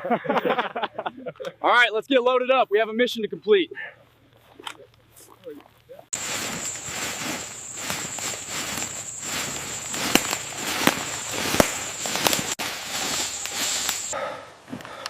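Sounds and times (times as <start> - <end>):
crackles and snaps: 6.2 - 14.2
insect buzzing: 6.2 - 14.2.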